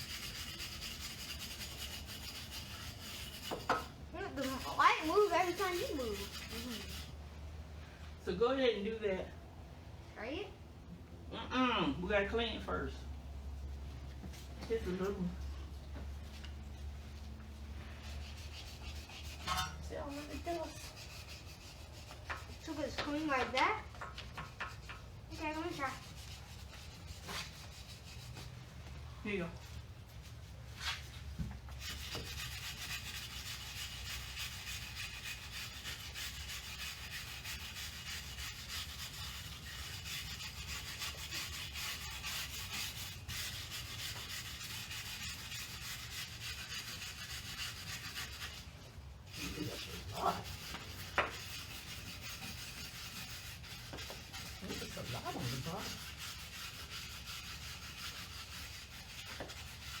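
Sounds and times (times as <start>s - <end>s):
scratchy rubbing of brake rotor: 0.0s - 7.2s, 13.5s - 60.0s.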